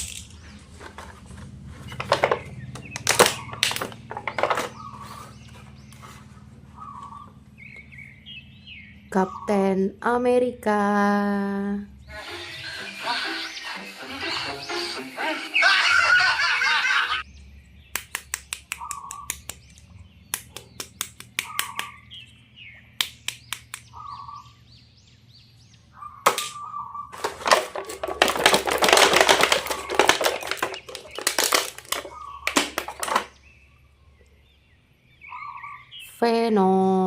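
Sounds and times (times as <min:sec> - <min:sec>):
plastic packaging clicks and taps: 0:27.2 - 0:33.4
plastic packaging crinkling: 0:27.2 - 0:33.4.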